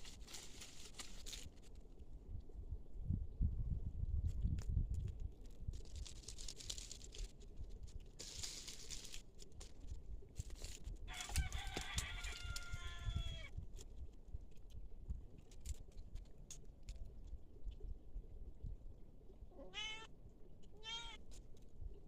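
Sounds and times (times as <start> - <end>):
rustling: 0.0 - 1.8, 5.3 - 12.9
rooster crowing: 11.1 - 13.5.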